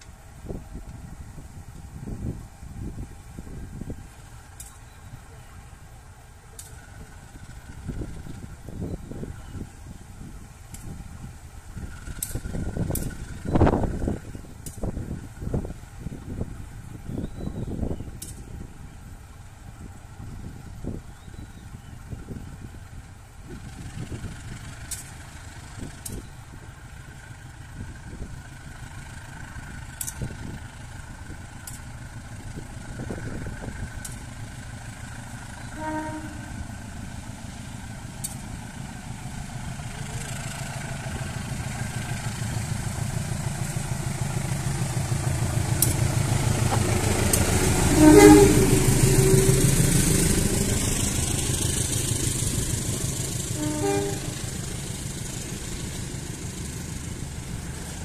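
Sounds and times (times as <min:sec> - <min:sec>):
coaches rolling on rails: 0:00.0 - 0:58.0
diesel locomotive engine rumble: 0:00.0 - 0:58.0
train horn: 0:35.5 - 0:36.7, 0:47.8 - 0:50.8, 0:53.5 - 0:54.6.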